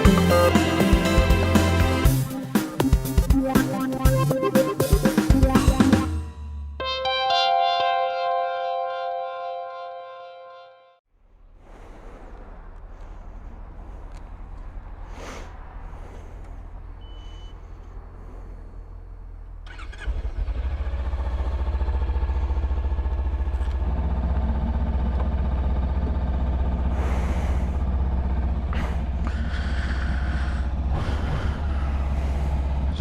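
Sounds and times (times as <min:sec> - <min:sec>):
motorcycle engine starting and idling: 0:11.4 - 0:33.0.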